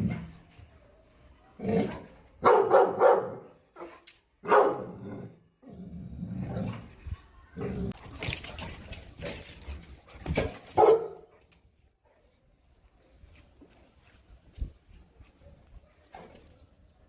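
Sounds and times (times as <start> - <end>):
dog barking: 2.4 - 5.0, 10.7 - 11.4.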